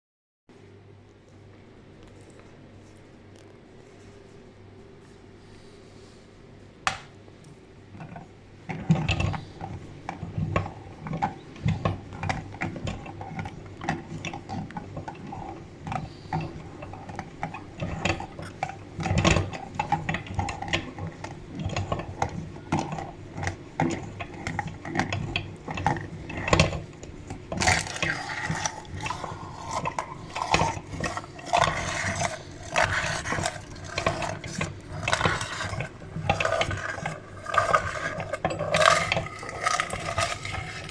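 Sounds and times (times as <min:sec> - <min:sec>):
meat grinder clicking and crunching: 0:08.7 - 0:40.9.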